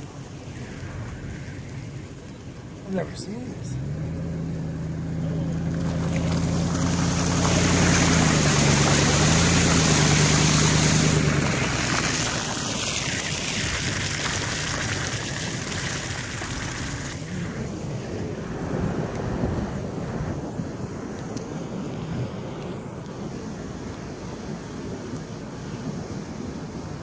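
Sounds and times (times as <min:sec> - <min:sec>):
vehicle engine running: 0:00.0 - 0:19.0
rushing water: 0:00.0 - 0:27.0
wind noise: 0:05.7 - 0:27.0.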